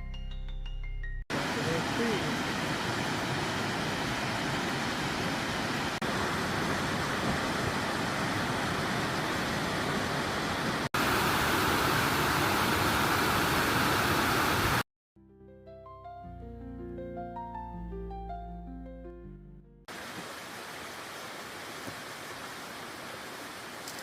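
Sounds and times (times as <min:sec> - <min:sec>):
soft piano music: 0:00.0 - 0:01.2, 0:15.2 - 0:19.9
waterfall roaring: 0:01.3 - 0:14.8, 0:19.9 - 0:24.0.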